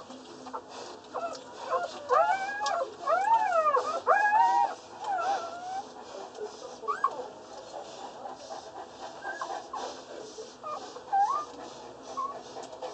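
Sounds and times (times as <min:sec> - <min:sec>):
puppies squeaking and whimpering: 0:00.5 - 0:06.0, 0:06.7 - 0:07.3, 0:09.2 - 0:09.8, 0:10.6 - 0:12.4.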